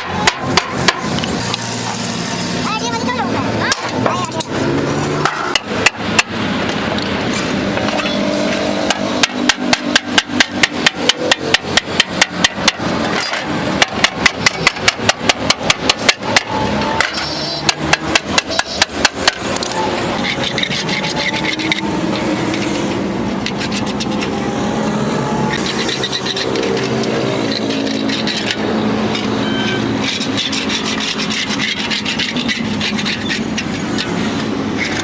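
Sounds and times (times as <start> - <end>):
hammer striking sheet metal: 0.0 - 2.8, 5.2 - 6.6, 7.7 - 24.3.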